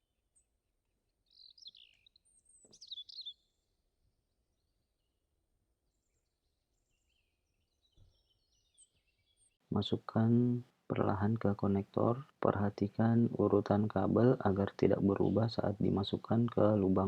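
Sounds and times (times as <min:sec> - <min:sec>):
faint bird chirps: 0:01.2 - 0:03.6.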